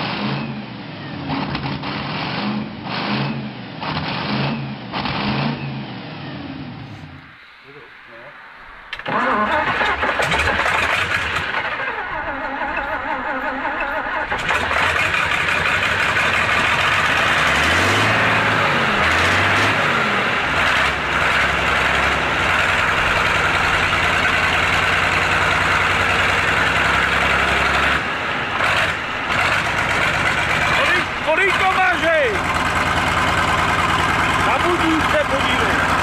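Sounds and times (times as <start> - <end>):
truck engine revving and idling: 0.0 - 7.4, 8.9 - 36.0.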